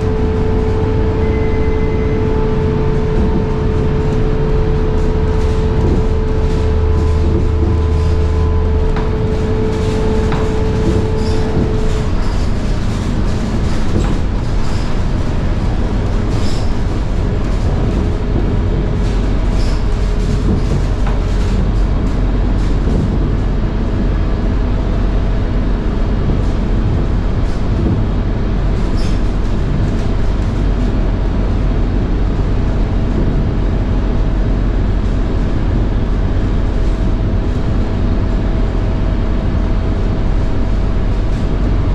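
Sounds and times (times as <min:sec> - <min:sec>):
driveline whine: 0:00.0 - 0:27.5
bus engine running: 0:00.0 - 0:41.9
road rumble: 0:00.0 - 0:41.9.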